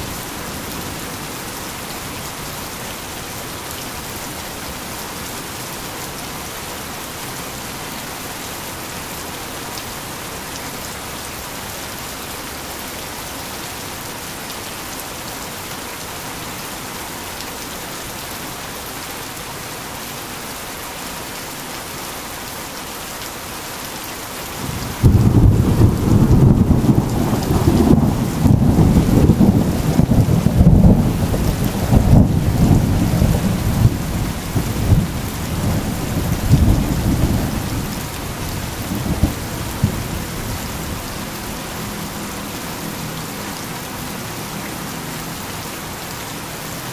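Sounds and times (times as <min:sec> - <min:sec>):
heavy rain falling: 0:00.0 - 0:46.9
deep thunder rumble: 0:24.6 - 0:40.6.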